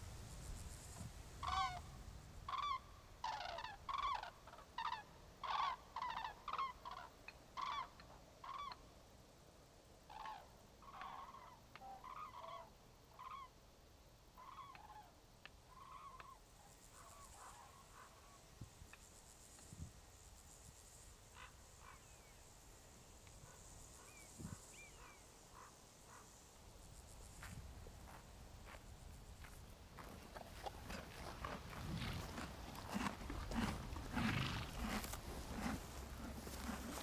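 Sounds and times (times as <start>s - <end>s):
cranes trumpeting calls: 1.4s - 1.9s, 2.5s - 8.8s, 10.1s - 13.5s, 14.4s - 18.4s, 21.3s - 22.3s, 23.4s - 26.4s.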